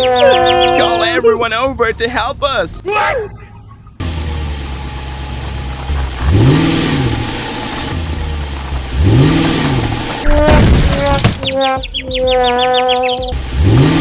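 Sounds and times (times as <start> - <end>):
vehicle engine revving: 3.9 - 14.0.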